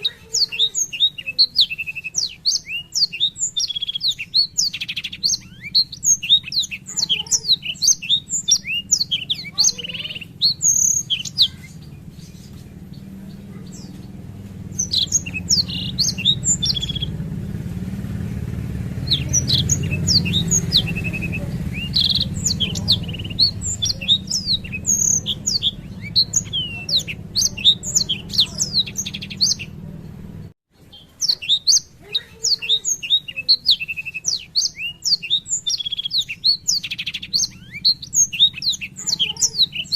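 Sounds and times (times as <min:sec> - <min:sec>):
steady low hum: 0:00.0 - 0:30.6
canary singing rolling song: 0:00.0 - 0:39.9.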